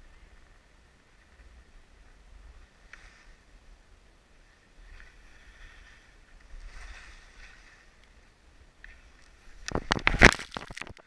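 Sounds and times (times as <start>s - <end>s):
wind rumble on microphone: 0.0s - 11.0s
sliding over snow hiss: 2.2s - 8.3s.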